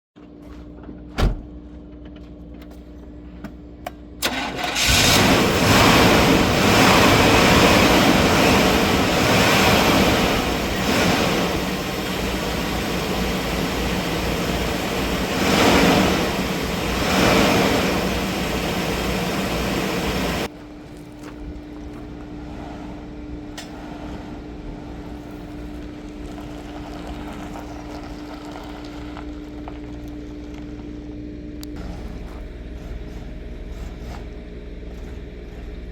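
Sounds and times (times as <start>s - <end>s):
car engine starting and running: 4.1s - 35.9s
engine revving: 4.2s - 20.5s, 21.2s - 29.3s.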